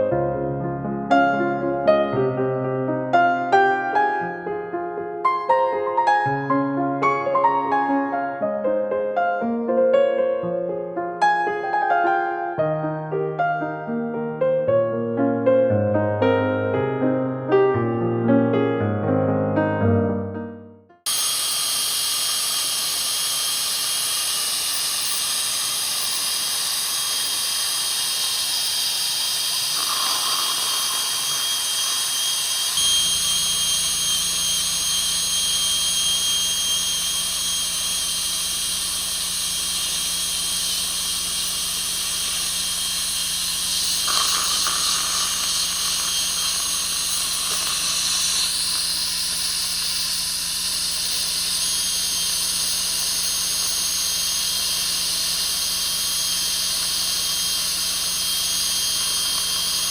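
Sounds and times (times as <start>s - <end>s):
dental drill hiss and whine: 21.1s - 59.9s.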